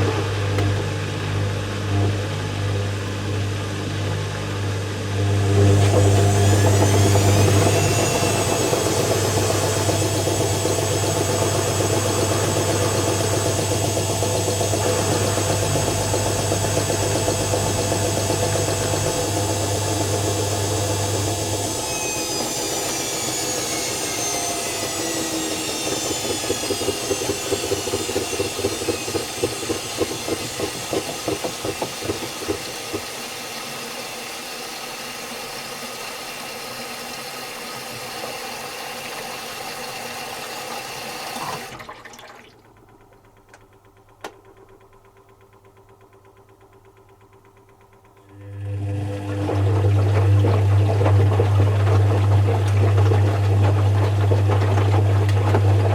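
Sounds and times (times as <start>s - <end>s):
washing machine motor whine: 0.0s - 55.9s
washing machine drum knocking: 5.8s - 21.7s, 26.5s - 33.3s, 49.5s - 55.9s.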